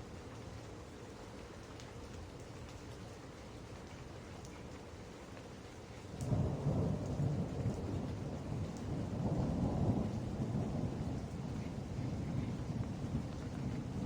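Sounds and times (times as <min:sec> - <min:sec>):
steady rain: 0:00.0 - 0:14.0
rolling thunder: 0:06.4 - 0:14.0.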